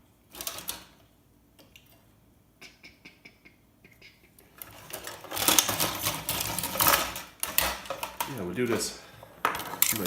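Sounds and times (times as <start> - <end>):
plastic and metal pieces clattering: 0.3 - 1.0, 4.5 - 10.0.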